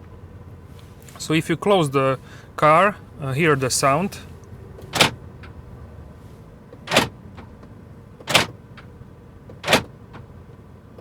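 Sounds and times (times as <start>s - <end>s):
car door locks clacking: 4.8s - 5.6s, 6.7s - 10.4s.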